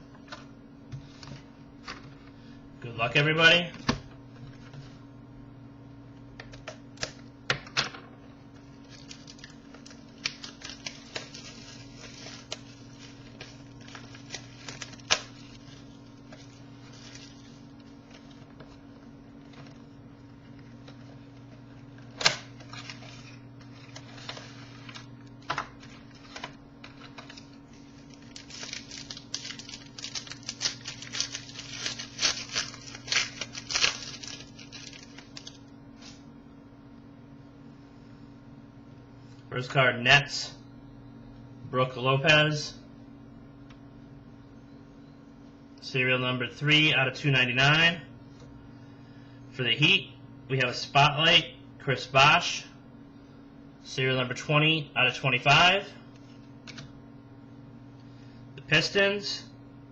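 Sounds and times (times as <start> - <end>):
steady low hum: 0.0 - 59.9
card packaging being opened: 8.7 - 18.8, 22.0 - 36.2
cards being handled: 8.9 - 18.8, 22.0 - 36.2.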